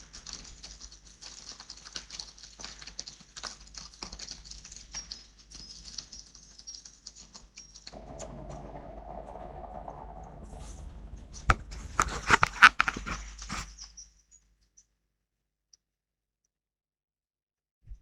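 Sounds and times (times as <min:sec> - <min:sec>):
raindrops pattering: 0:00.0 - 0:13.8.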